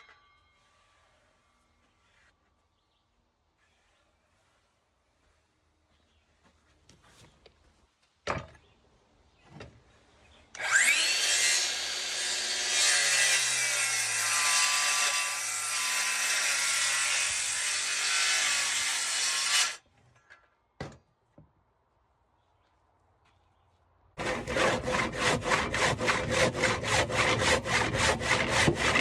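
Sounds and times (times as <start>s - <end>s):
power saw cutting wood: 10.6s - 19.8s, 24.2s - 29.0s.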